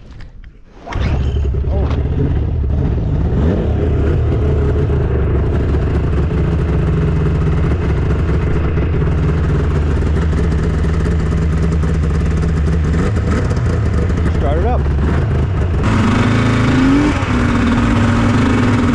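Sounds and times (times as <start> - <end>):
snowmobile engine running: 1.3 - 18.9.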